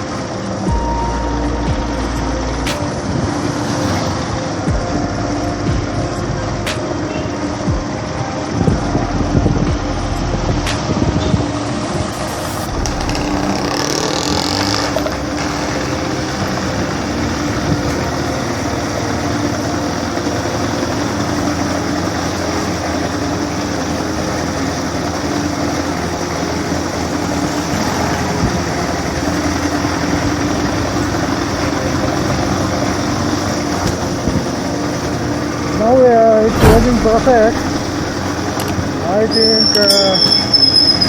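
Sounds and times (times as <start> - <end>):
motorcycle engine idling: 12.2 - 41.0.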